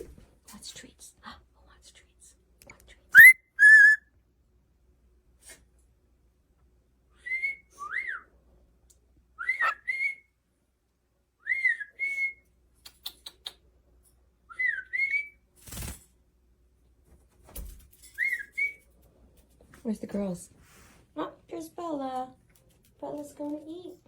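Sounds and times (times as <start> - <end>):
cockatiel whistling: 3.2 - 4.0.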